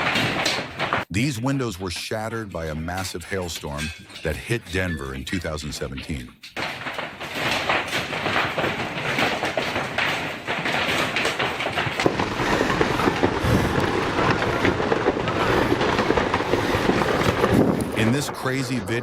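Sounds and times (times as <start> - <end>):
hailstones pelting down: 0.0 - 1.7, 2.6 - 19.0.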